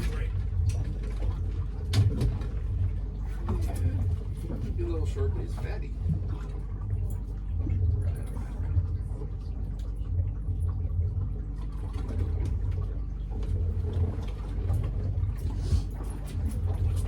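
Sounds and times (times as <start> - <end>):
boat motor idling: 0.0 - 17.0
water noise: 0.0 - 17.0.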